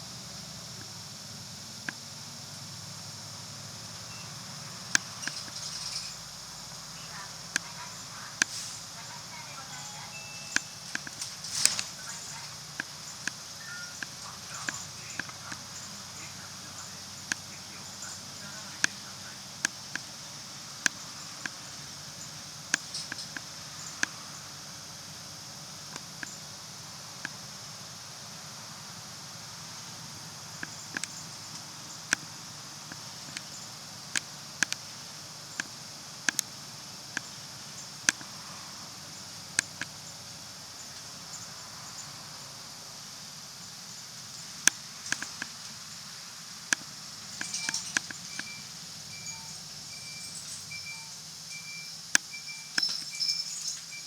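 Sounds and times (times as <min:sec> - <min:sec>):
bus engine and road hum: 0:00.0 - 0:51.6
high hiss: 0:00.0 - 0:54.0
short sharp rattles and clicks: 0:04.9 - 0:06.5, 0:07.4 - 0:09.0, 0:10.5 - 0:20.2, 0:20.8 - 0:24.2, 0:46.7 - 0:48.6.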